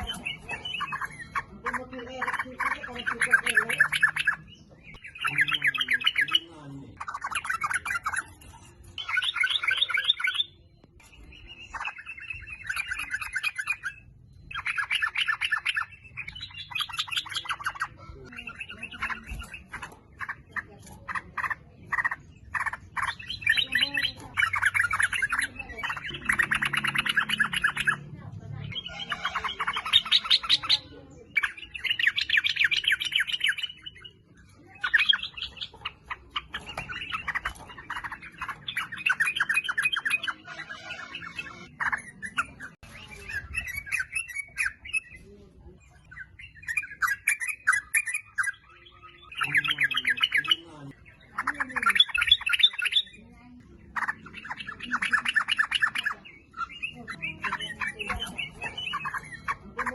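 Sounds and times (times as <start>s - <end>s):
bird chattering song: 0.0s - 59.9s.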